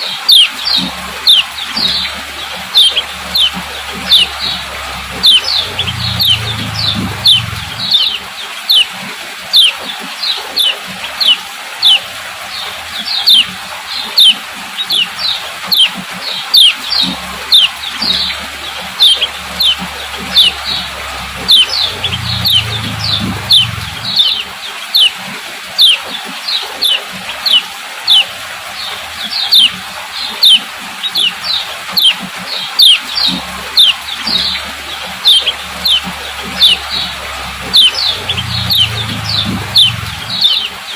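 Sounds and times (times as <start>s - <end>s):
bird calling sharp high notes: 1.2s - 8.9s, 17.4s - 24.4s, 33.7s - 40.8s.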